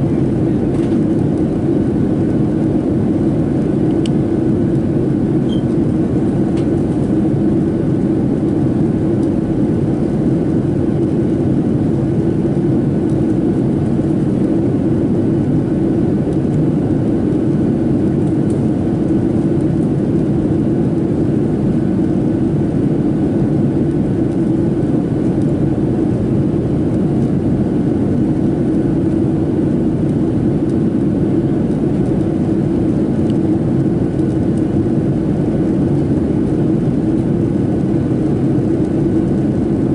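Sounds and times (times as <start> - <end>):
airplane cabin roar: 0.0 - 39.9.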